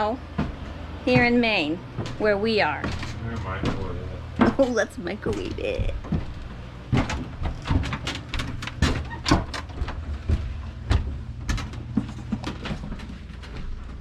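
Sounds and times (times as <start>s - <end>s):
steady low hum: 0.0s - 14.0s
knocks and clicks of handling: 5.3s - 14.0s.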